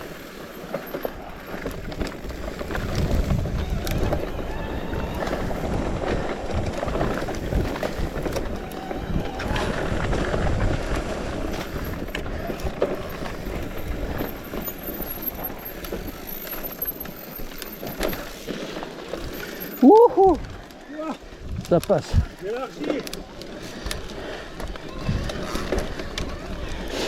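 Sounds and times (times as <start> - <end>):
bike tyre rumble on dirt: 0.0 - 27.0
bike knocks and rattles: 0.6 - 19.8
wind buffeting microphone: 1.2 - 16.2, 23.8 - 27.0.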